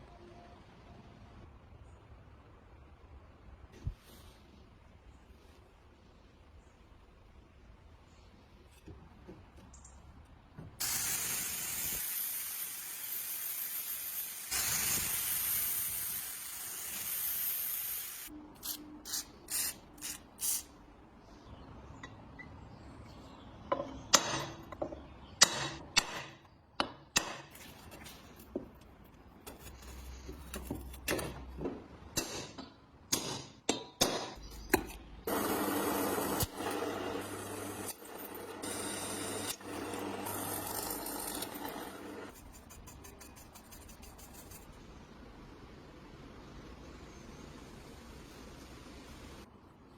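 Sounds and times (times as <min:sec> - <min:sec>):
hissing spray: 0:10.8 - 0:18.3.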